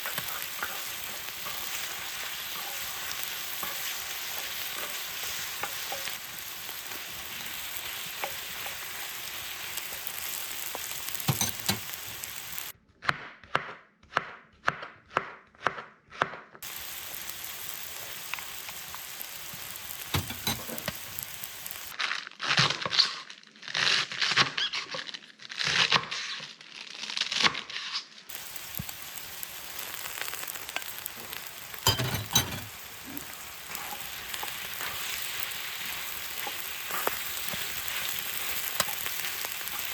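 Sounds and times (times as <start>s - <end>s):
ingredients sizzling while stir-fried: 0.0s - 12.8s, 16.6s - 22.0s, 27.4s - 39.9s
chopping on a cutting board: 13.0s - 16.6s.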